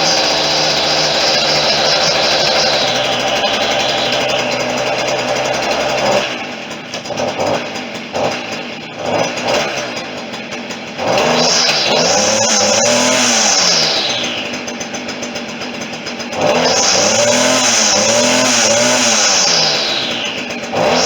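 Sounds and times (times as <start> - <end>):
string trimmer engine revving: 0.0 - 21.0.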